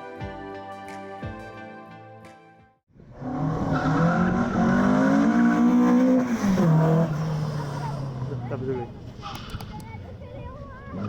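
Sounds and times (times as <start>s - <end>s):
background music: 0.0s - 2.8s
car engine revving: 3.1s - 10.2s.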